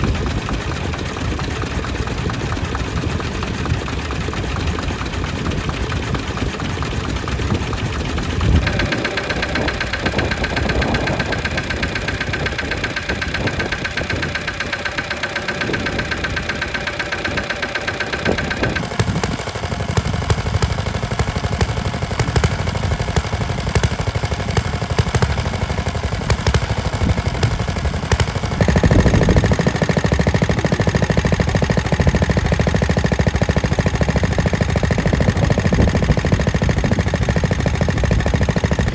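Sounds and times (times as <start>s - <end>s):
stationary engines running: 0.0s - 38.9s.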